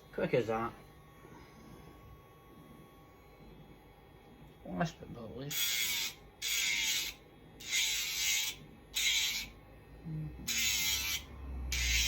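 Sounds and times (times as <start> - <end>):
electric nail grinder grinding: 5.5 - 9.6, 10.4 - 12.0.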